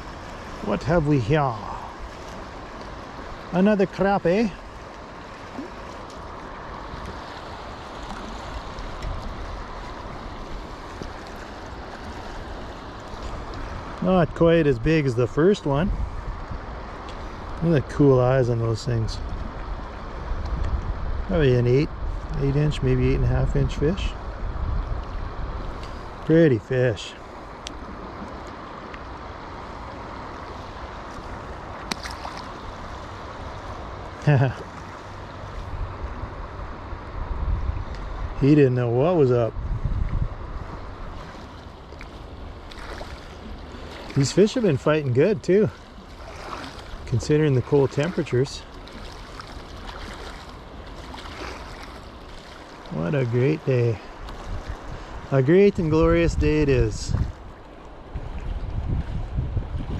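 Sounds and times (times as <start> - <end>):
water rushing down a creek: 0.0 - 15.8, 40.4 - 59.9
wind rumble on microphone: 0.0 - 59.9.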